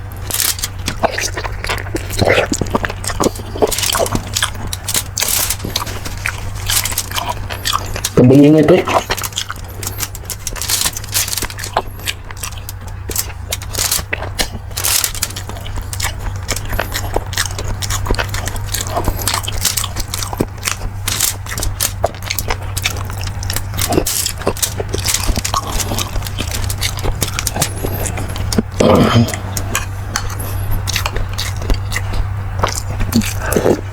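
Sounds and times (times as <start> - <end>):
chewing with crackles: 0.0 - 33.9
steady low hum: 0.0 - 33.9.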